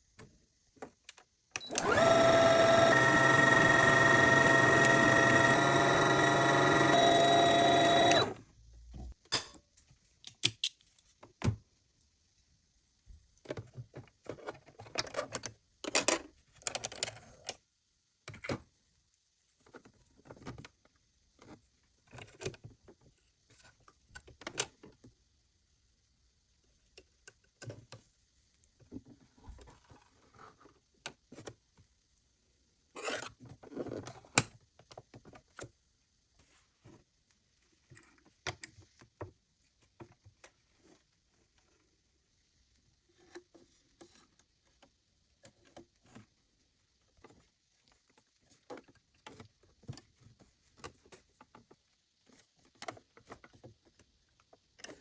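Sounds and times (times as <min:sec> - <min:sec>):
sewing machine motor running: 0:01.7 - 0:08.4.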